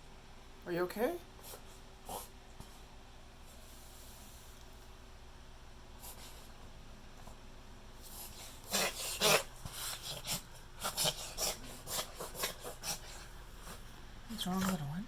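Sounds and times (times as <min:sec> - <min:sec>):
dog reverse sneezing: 0:08.1 - 0:13.8.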